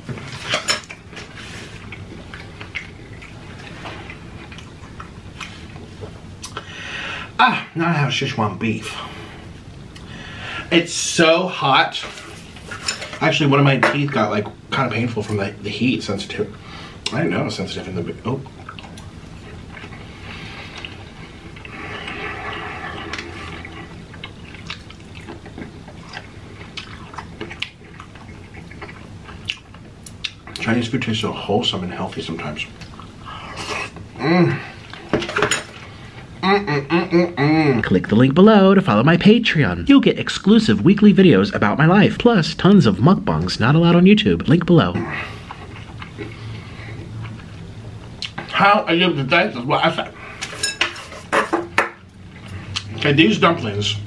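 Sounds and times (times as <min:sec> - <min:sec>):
wet chewing and mouth sounds: 0:00.2 - 0:06.7, 0:18.4 - 0:30.7, 0:32.7 - 0:34.1, 0:45.2 - 0:48.5
lip smacks: 0:06.4 - 0:06.7, 0:23.1 - 0:30.6
wet chewing mouth clicks: 0:21.6 - 0:30.6.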